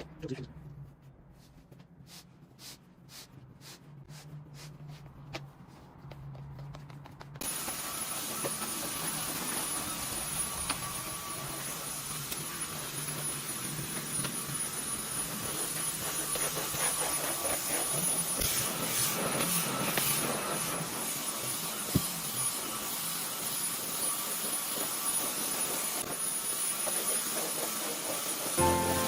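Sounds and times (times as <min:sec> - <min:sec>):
faint high whine: 0:28.6 - 0:29.0.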